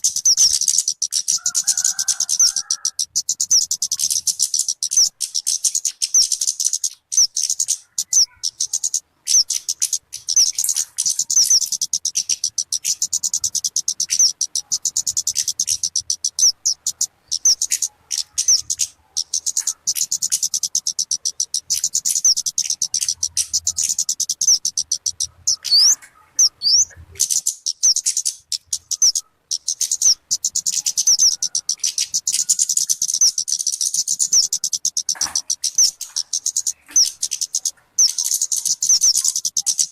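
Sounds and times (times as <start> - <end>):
bird chirping and twittering: 0.0 - 39.9.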